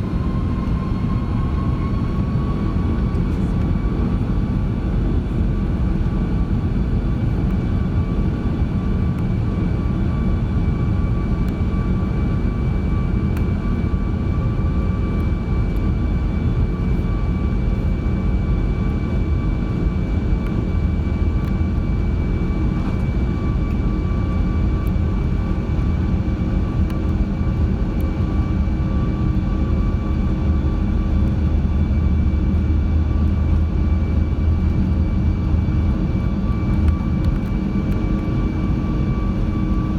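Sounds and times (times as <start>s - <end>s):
aircraft cabin engine rumble: 0.0s - 39.9s
constant engine whine: 0.0s - 39.9s.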